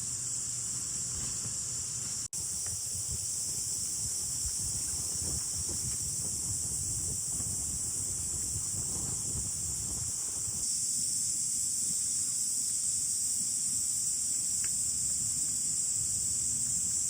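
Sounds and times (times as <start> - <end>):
insects trilling: 0.0 - 17.0
wind buffeting microphone: 2.4 - 10.6.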